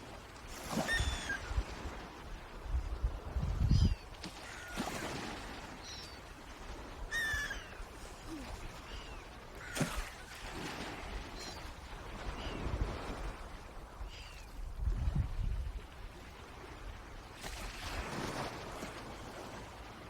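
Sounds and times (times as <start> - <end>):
gliding bird calls: 7.1 - 7.8.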